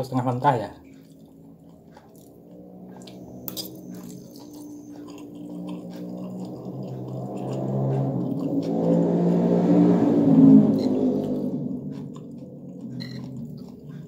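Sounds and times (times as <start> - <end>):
chewing noodles: 0.8 - 9.6, 10.6 - 14.0.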